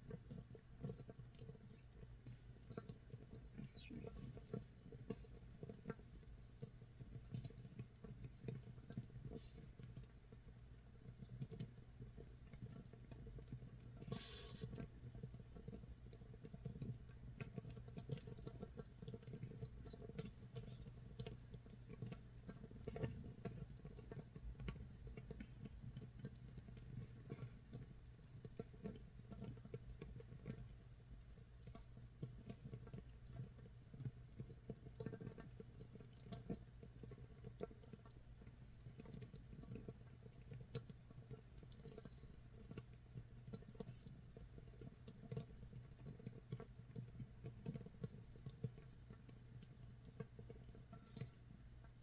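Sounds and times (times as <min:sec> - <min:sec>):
low steady hum: 0:00.0 - 0:52.0
fizz of bubbles popping: 0:00.1 - 0:10.5.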